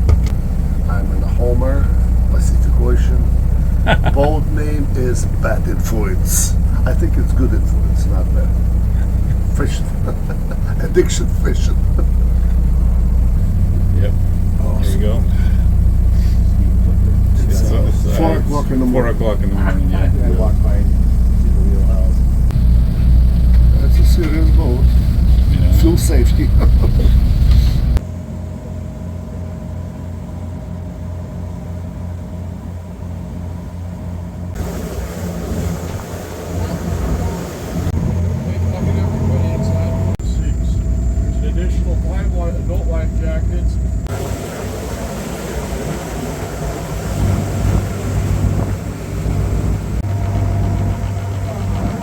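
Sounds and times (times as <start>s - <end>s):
water noise: 0.0s - 28.0s, 34.6s - 40.2s, 44.0s - 52.0s
boat engine pulsing drone: 0.0s - 52.0s
faint steady whine: 0.0s - 52.0s
wind: 0.0s - 52.0s
hiss: 34.6s - 37.9s, 44.1s - 48.7s
loud rushing noise: 44.1s - 51.4s.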